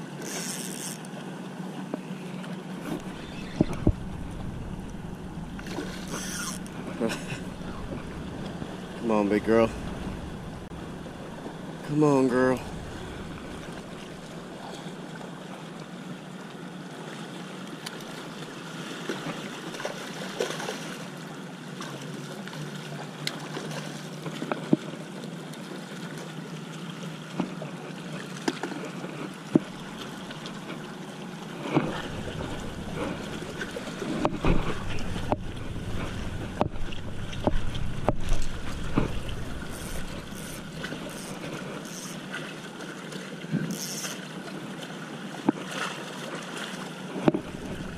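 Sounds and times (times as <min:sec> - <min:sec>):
wind and water noise: 0:00.0 - 0:47.9
wind rumble on microphone: 0:02.8 - 0:14.9, 0:31.8 - 0:41.7, 0:47.2 - 0:47.9.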